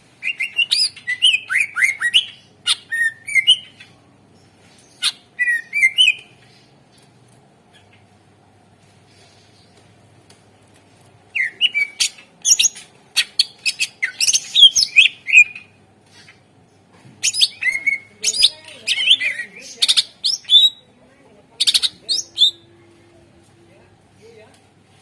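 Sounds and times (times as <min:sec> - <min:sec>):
bird singing: 0:00.2 - 0:03.9, 0:04.9 - 0:06.3, 0:11.4 - 0:15.8, 0:17.2 - 0:20.9, 0:21.6 - 0:23.0.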